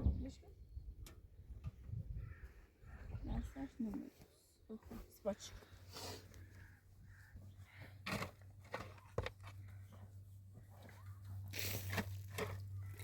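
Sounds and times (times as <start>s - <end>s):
rough scraping or rustling: 11.5s - 12.6s.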